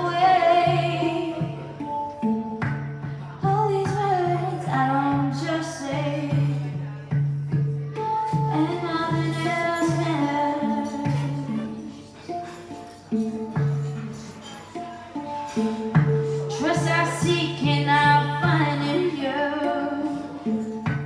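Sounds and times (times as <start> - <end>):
woman singing: 0.0 - 2.0, 3.4 - 7.0, 8.4 - 12.1, 16.3 - 20.8
handpan notes: 0.0 - 21.0.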